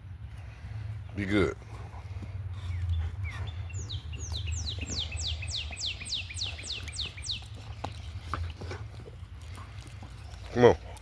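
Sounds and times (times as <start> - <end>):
songbird whistling: 2.8 - 7.7.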